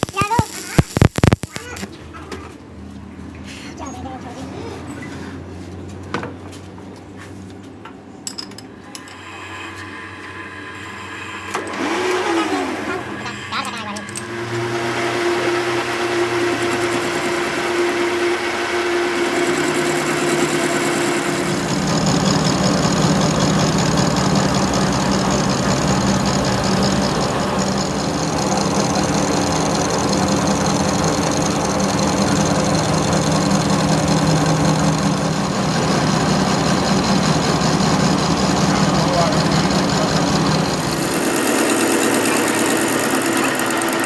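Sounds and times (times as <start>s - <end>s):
machine humming: 10.0s - 44.0s.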